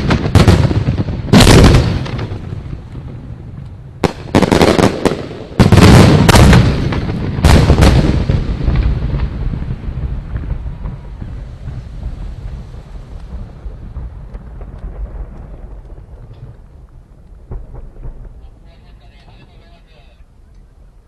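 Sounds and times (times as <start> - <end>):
fireworks booming: 0.0 - 21.0
low rumble: 8.4 - 19.6.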